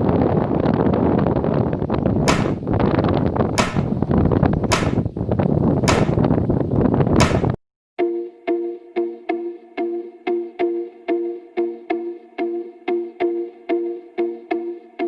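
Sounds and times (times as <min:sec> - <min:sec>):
wind buffeting microphone: 0:00.0 - 0:07.6
sharp clicks: 0:02.3 - 0:02.6, 0:03.6 - 0:04.0, 0:04.7 - 0:05.0, 0:05.9 - 0:06.2.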